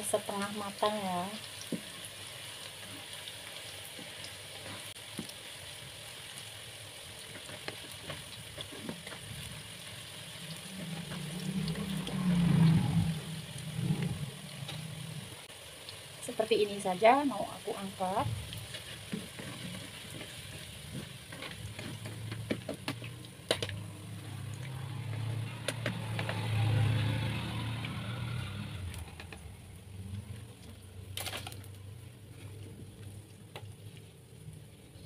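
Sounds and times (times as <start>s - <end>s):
food sizzling in hot oil: 0.0s - 32.0s
low rumble: 11.0s - 15.5s.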